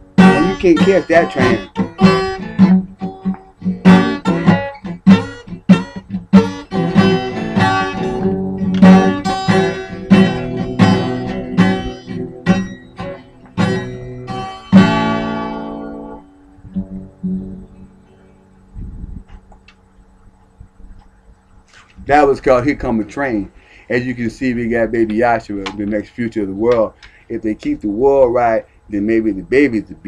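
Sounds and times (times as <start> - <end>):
acoustic guitar strumming blues: 0.0 - 18.6.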